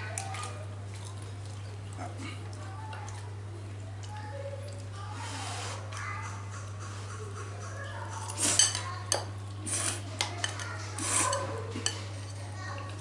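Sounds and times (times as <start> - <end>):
utensils clinking on dishes: 7.4 - 13.0
utensils scraping dishes: 8.2 - 12.4.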